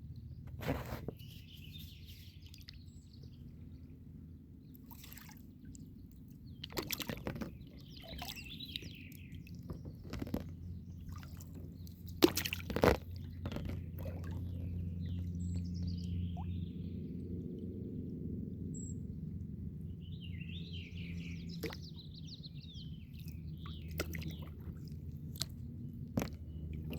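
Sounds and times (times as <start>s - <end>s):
birds chirping faintly: 0.1s - 26.9s
paddle splashing water: 4.8s - 16.6s, 21.3s - 26.9s.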